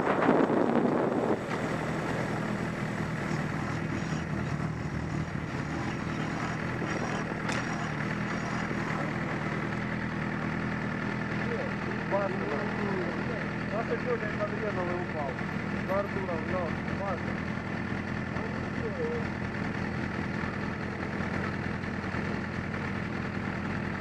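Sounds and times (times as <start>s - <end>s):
wind noise rush: 0.0s - 2.6s
motorcycle engine idling: 0.1s - 24.0s.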